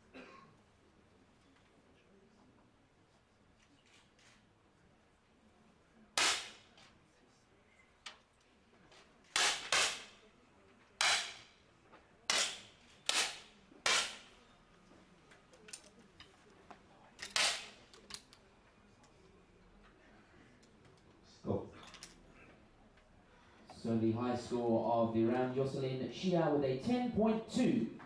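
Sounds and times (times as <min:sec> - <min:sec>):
air pistol shots: 0:06.2 - 0:06.8, 0:09.4 - 0:10.2, 0:11.0 - 0:11.5, 0:12.3 - 0:14.3, 0:17.3 - 0:17.8.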